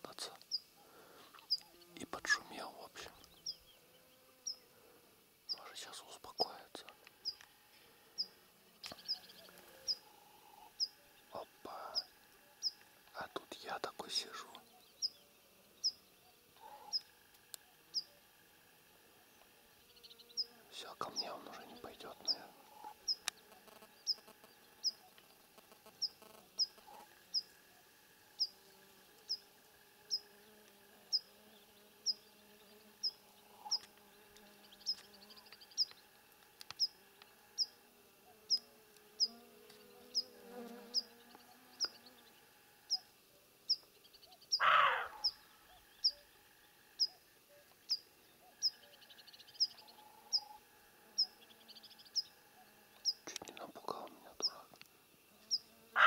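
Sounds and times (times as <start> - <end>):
small bird chirping: 0.0 - 0.7, 1.3 - 4.7, 5.5 - 7.5, 8.1 - 18.3, 19.2 - 54.7, 55.4 - 56.0
louder lower bird call: 44.5 - 45.4.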